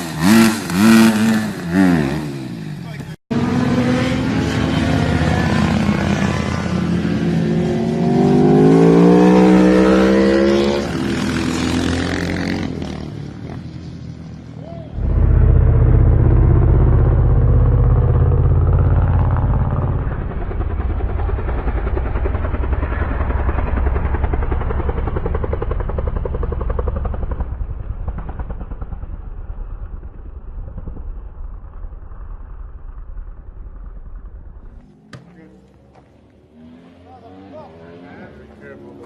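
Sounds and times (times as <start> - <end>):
motorcycle engine running: 15.0 - 29.2.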